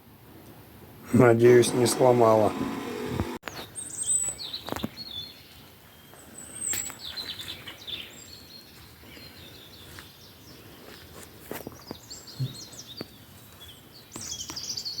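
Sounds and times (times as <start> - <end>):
small birds chirping: 3.4 - 15.0.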